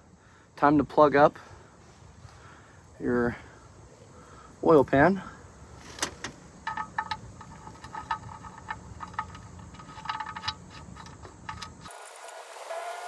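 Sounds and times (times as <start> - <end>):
low background hum: 0.0 - 12.6
light metallic clicks and clinks: 4.2 - 5.2, 5.8 - 12.0.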